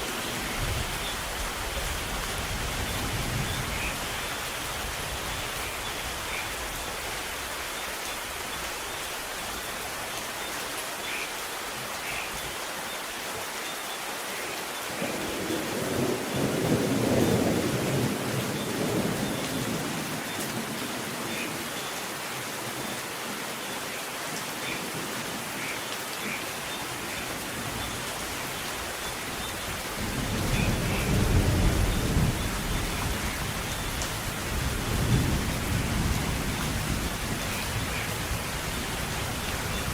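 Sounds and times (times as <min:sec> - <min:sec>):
steady rain falling: 0:00.0 - 0:39.9
thunder rumbling: 0:29.9 - 0:39.9.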